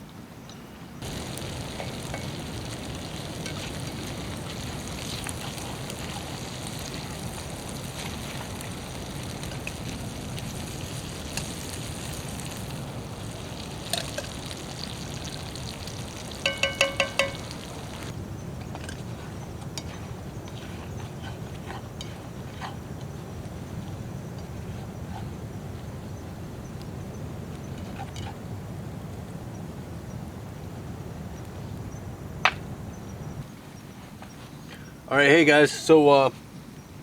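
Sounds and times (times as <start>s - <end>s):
potatoes sizzling in oil: 1.0s - 18.2s
ringing metallic clinks: 16.4s - 17.5s.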